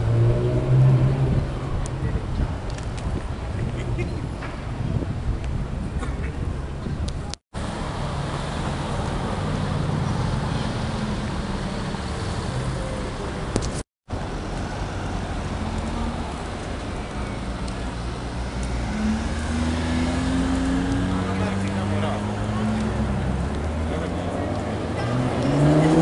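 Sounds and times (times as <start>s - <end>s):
street traffic: 0.0s - 26.0s
sports car accelerating past: 18.7s - 26.0s.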